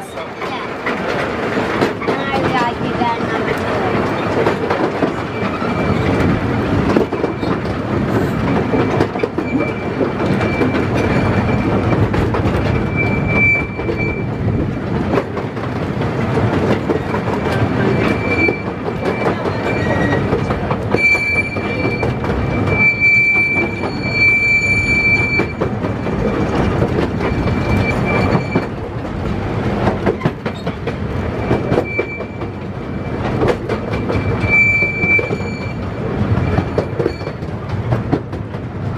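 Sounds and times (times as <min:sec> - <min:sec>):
rail joint clicks: 0:00.0 - 0:38.9
train wheels rumbling on rail: 0:00.0 - 0:38.9
high-pitched wheel squeal: 0:08.7 - 0:14.4, 0:17.8 - 0:25.7, 0:27.2 - 0:28.8, 0:31.4 - 0:33.3, 0:33.9 - 0:37.4.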